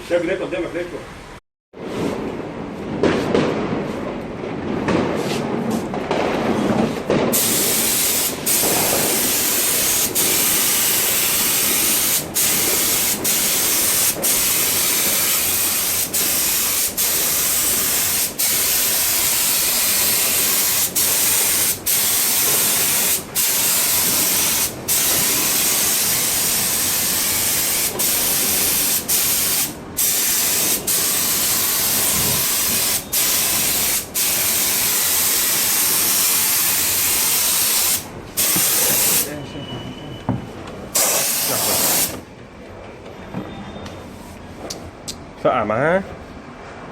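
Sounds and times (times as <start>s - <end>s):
loud pressurised hiss: 7.4s - 39.4s, 41.0s - 42.2s.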